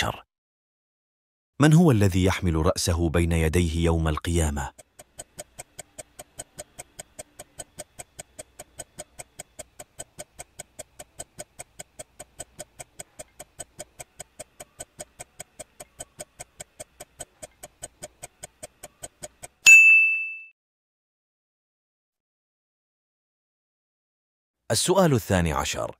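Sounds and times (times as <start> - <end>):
clock-like ticking: 3.2 - 19.7
bright ding: 19.6 - 20.5.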